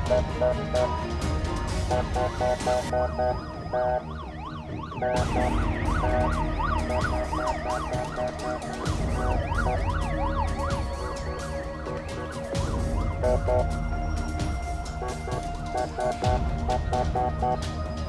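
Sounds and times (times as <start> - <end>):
background music with steady beat: 0.0 - 18.0
police siren yelping: 2.2 - 13.8.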